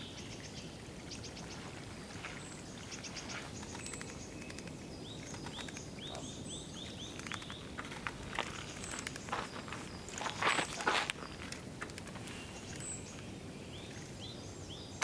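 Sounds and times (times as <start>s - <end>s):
wild birds calling: 3.1s - 11.5s
thin high ticks: 3.5s - 5.9s, 7.0s - 10.3s, 11.1s - 12.8s.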